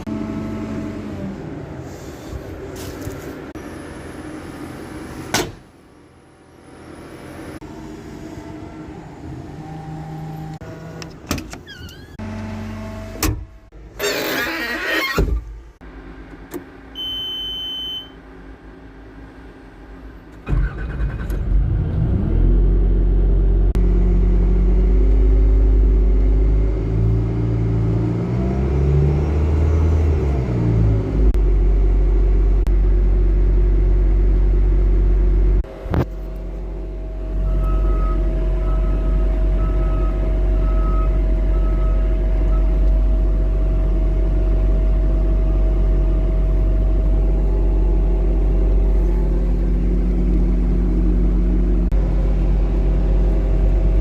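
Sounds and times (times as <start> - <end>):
diesel engine running: 15.5 - 54.0
short beeps: 17.0 - 18.2.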